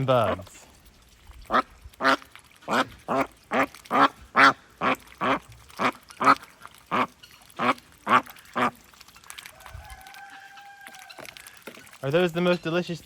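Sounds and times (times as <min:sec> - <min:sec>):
duck quacking: 0:01.5 - 0:08.7.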